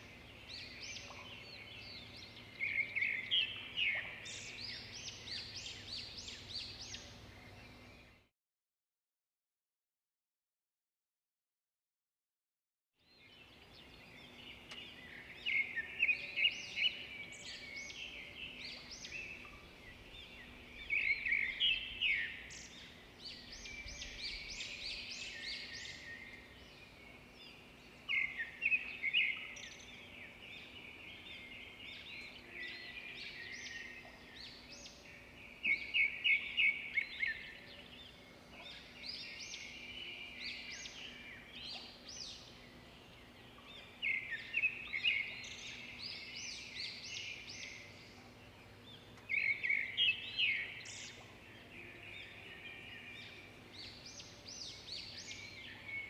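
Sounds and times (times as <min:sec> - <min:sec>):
songbirds chirping: 0:00.0 - 0:08.3, 0:13.0 - 0:56.0
faint steady hum: 0:13.3 - 0:56.0.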